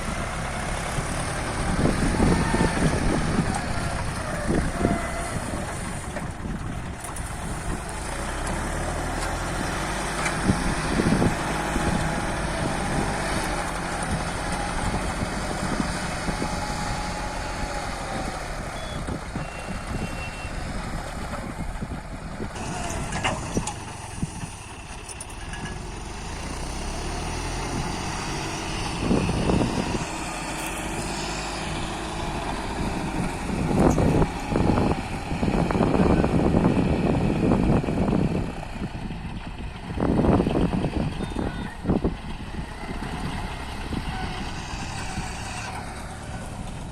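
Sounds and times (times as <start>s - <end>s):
tractor engine running: 0.0s - 46.9s.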